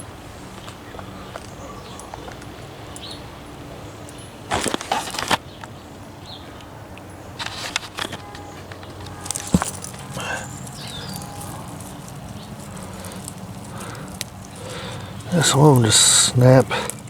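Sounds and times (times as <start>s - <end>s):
weeds rustling and tearing: 4.4s - 5.5s, 7.3s - 17.0s.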